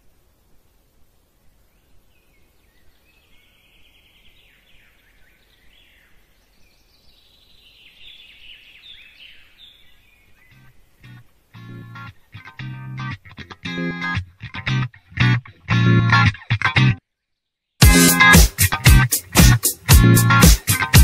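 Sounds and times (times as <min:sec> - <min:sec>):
faint bird chirps: 0:01.5 - 0:12.6.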